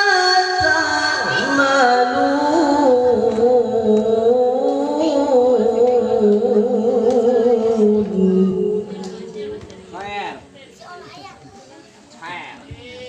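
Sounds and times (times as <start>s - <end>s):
person reciting a melodic chant: 0.0s - 10.1s.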